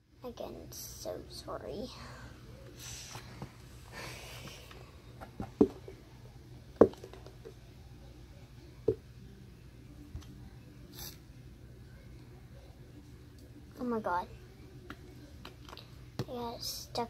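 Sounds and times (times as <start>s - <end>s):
plastic bottle knocking on table: 6.8s - 7.4s.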